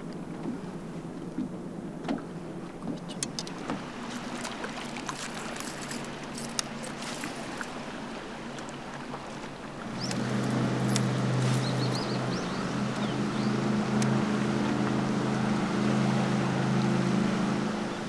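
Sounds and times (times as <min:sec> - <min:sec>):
boat motor humming: 0:03.3 - 0:18.0
small clicks and knocks: 0:10.0 - 0:12.0.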